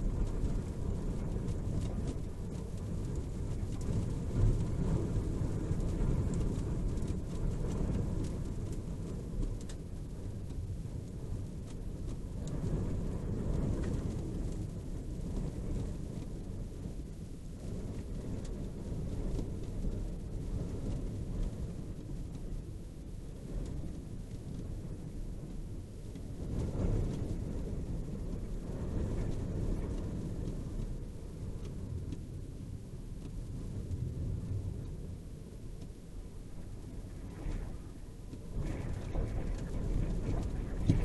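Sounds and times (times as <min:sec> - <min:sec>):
thunder rumbling: 0:00.0 - 0:41.0.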